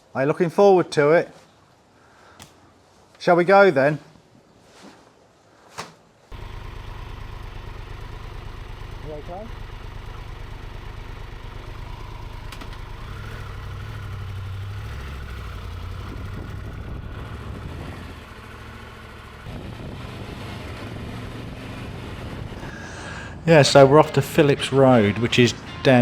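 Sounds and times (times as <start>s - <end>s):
motorcycle engine running: 6.3s - 23.4s.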